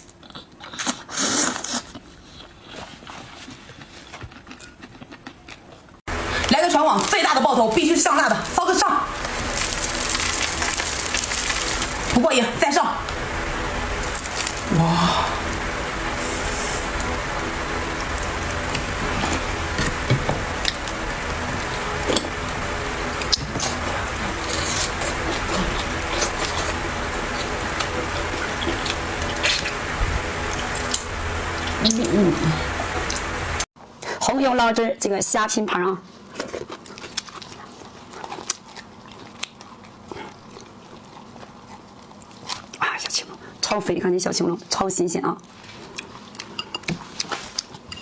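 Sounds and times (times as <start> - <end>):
eating seafood clicks and crackles: 0.0 - 6.0, 6.8 - 32.2, 36.1 - 43.7, 45.0 - 47.9
wet chewing: 0.0 - 6.0, 7.8 - 33.6, 36.1 - 43.5, 45.4 - 48.0
steady hiss: 9.1 - 33.7.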